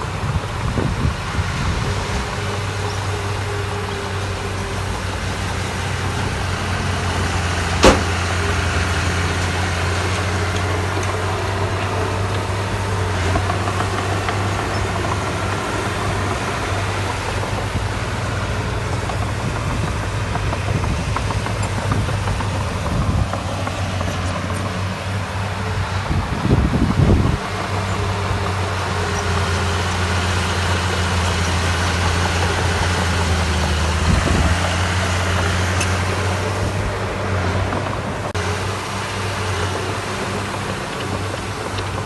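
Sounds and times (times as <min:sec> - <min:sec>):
diesel engine humming: 0:00.0 - 0:42.0
sharp knock: 0:07.8 - 0:08.2.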